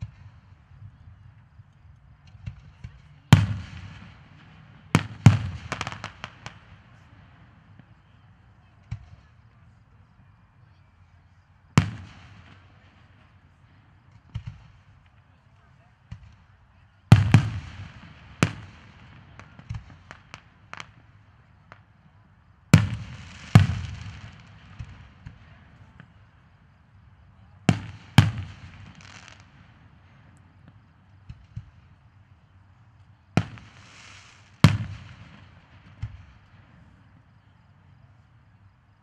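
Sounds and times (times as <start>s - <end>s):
small firework pops: 0.0s - 9.8s, 11.8s - 13.4s, 14.0s - 26.5s, 27.4s - 32.3s, 32.9s - 37.4s
firework shells booming: 27.7s - 29.6s.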